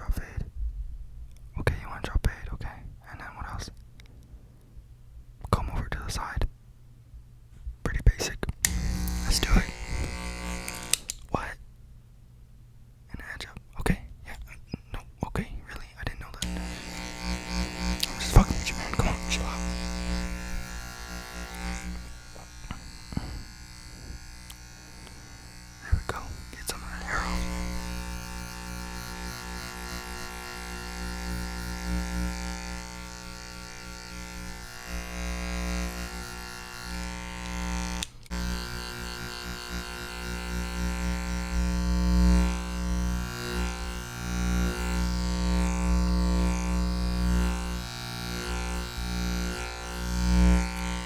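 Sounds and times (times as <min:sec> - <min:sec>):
electric hair clippers buzzing: 0:08.6 - 0:11.3, 0:16.4 - 0:51.0.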